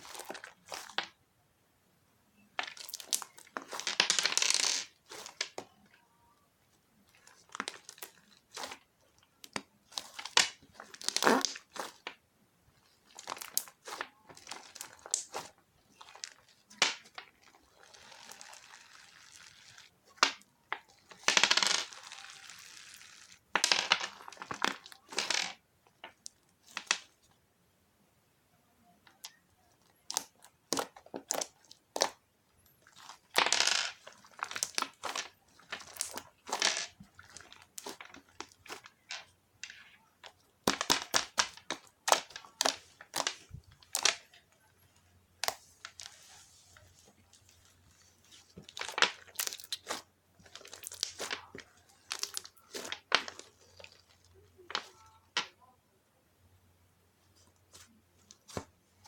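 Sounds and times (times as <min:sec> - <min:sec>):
slime crackling and popping: 0:07.1 - 0:12.1, 0:30.0 - 0:32.2, 0:34.0 - 0:39.1, 0:48.7 - 0:54.2.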